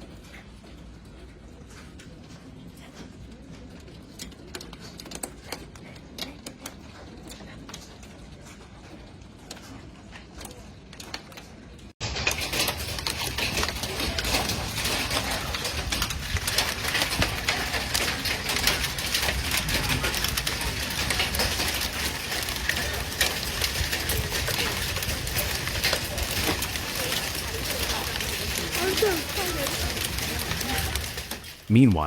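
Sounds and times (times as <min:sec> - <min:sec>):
hail pelting down: 0:12.0 - 0:32.0.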